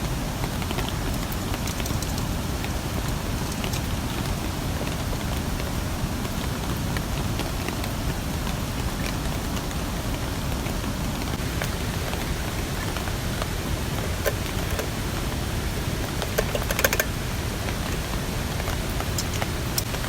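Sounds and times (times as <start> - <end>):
rain falling: 0.0 - 20.0.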